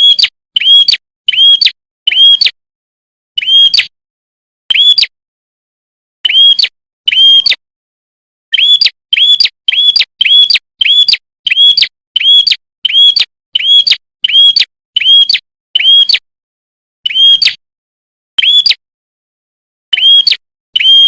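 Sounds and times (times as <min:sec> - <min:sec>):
bird sharp chirping call: 0:00.0 - 0:02.6, 0:03.4 - 0:03.9, 0:04.7 - 0:05.1, 0:06.2 - 0:07.6, 0:08.5 - 0:16.2, 0:17.0 - 0:17.6, 0:18.4 - 0:18.8, 0:19.9 - 0:21.0.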